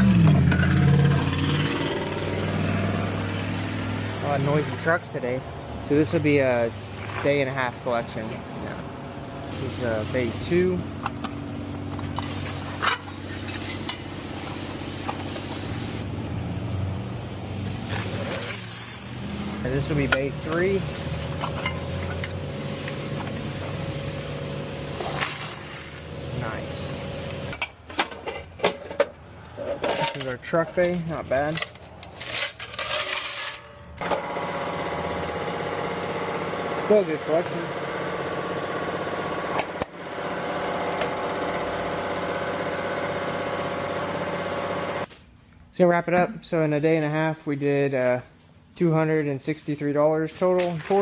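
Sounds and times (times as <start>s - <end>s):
low mechanical hum: 4.4s - 45.7s
coins clinking in metal vault: 6.9s - 7.6s, 11.5s - 14.1s, 17.6s - 26.6s, 29.7s - 34.0s, 50.6s - 51.0s.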